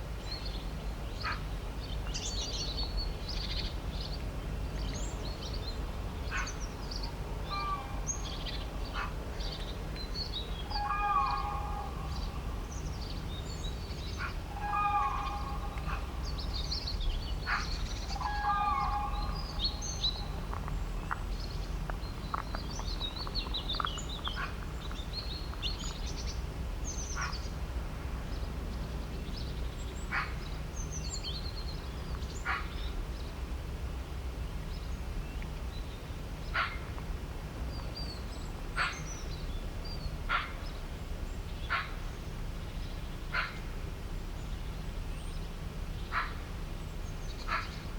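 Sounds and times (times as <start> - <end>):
steady low rumble: 2.6 - 47.9
birds chirping: 4.8 - 27.6
low pitched bird calls: 6.3 - 27.5.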